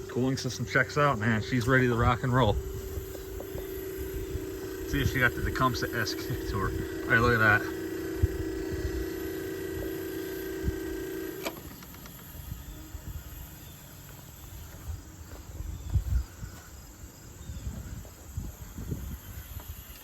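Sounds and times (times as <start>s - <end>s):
air conditioner humming: 0.0s - 15.8s
faint insect sounds: 0.0s - 20.0s
microphone rumbles: 1.3s - 11.1s.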